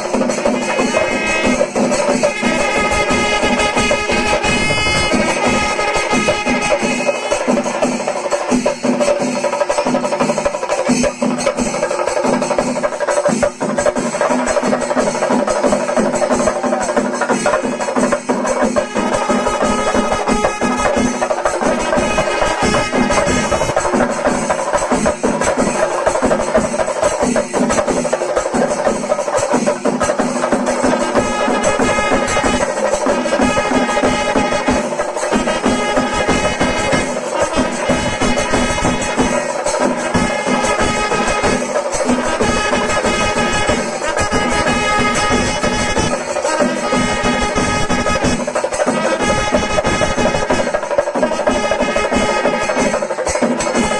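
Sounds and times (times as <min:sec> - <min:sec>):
drums and cymbals beating: 0:00.0 - 0:53.9
sustained wind instrument tones: 0:02.3 - 0:07.5.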